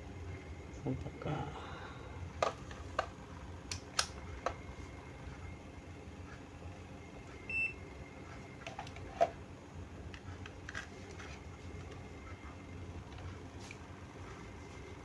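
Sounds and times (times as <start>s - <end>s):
test probes clicking: 2.4s - 4.6s
multimeter beep: 7.4s - 7.9s.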